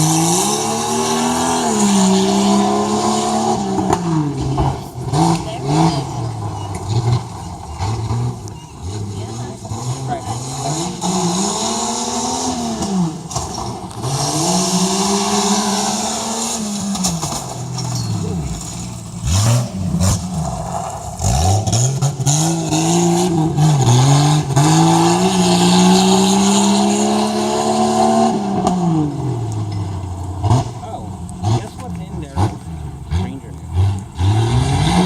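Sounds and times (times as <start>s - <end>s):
truck engine revving: 0.0s - 35.0s.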